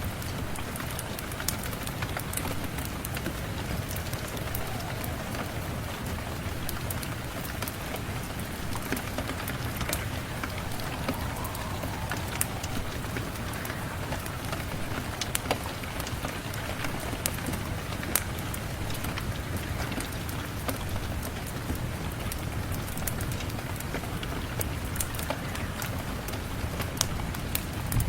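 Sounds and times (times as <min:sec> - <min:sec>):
steady rain: 0:00.0 - 0:28.0
wood fire crackling: 0:01.0 - 0:17.4.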